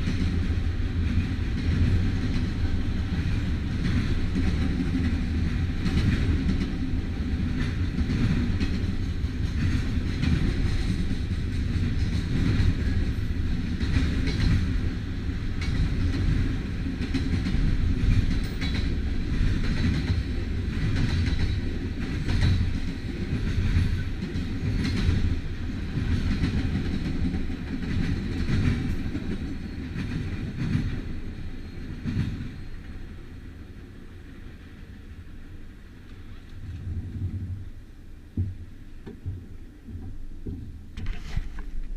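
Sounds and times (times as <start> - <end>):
wheels clacking over rail joints: 0.0 - 33.0
freight train rumbling past: 0.0 - 40.9.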